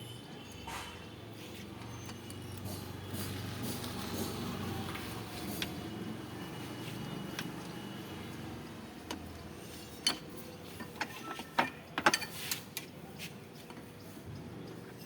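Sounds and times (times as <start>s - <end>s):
metal tools clicking and tapping: 1.8s - 5.9s, 9.0s - 12.9s.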